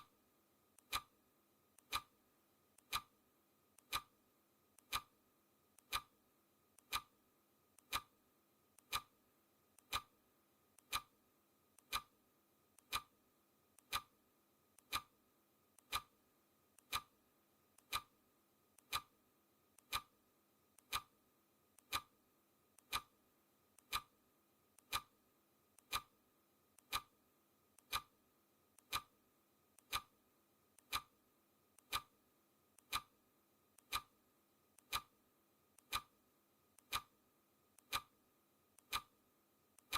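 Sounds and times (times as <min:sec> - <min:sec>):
clock ticking: 0:00.8 - 0:01.2, 0:01.8 - 0:02.2, 0:02.8 - 0:03.1, 0:03.8 - 0:04.1, 0:04.8 - 0:05.2, 0:05.8 - 0:06.2, 0:06.8 - 0:07.1, 0:07.8 - 0:08.2, 0:08.8 - 0:09.2, 0:09.8 - 0:10.2, 0:10.8 - 0:11.2, 0:11.8 - 0:12.2, 0:12.8 - 0:13.1, 0:13.8 - 0:14.2, 0:14.8 - 0:15.1, 0:15.8 - 0:16.2, 0:16.8 - 0:17.2, 0:17.8 - 0:18.2, 0:18.8 - 0:19.2, 0:19.8 - 0:20.2, 0:20.8 - 0:21.2, 0:21.8 - 0:22.2, 0:22.8 - 0:23.2, 0:23.8 - 0:24.2, 0:24.8 - 0:25.2, 0:25.8 - 0:26.2, 0:26.8 - 0:27.2, 0:27.8 - 0:28.2, 0:28.8 - 0:29.2, 0:29.8 - 0:30.2, 0:30.8 - 0:31.2, 0:31.8 - 0:32.2, 0:32.8 - 0:33.2, 0:33.8 - 0:34.2, 0:34.8 - 0:35.2, 0:35.8 - 0:36.2, 0:36.8 - 0:37.2, 0:37.8 - 0:38.2, 0:38.8 - 0:39.2.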